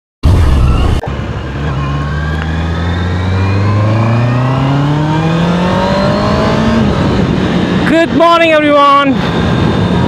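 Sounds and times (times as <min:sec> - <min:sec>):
motorcycle engine accelerating: 0:00.3 - 0:07.9.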